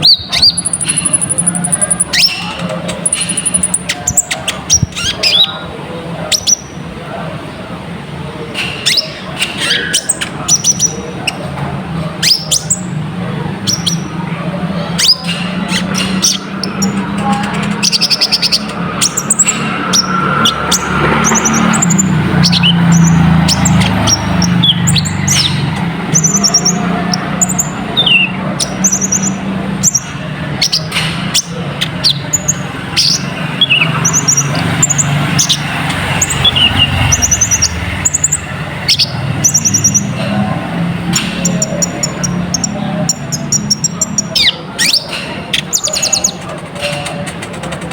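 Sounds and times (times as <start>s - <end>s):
bird chirps and trills: 0.0s - 7.2s, 8.5s - 47.9s.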